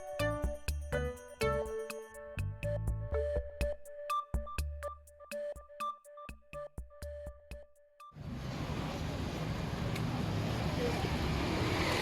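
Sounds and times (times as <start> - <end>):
electronic music with a beat: 0.0 - 8.2
low traffic rumble: 8.2 - 12.0
street noise: 8.2 - 12.0.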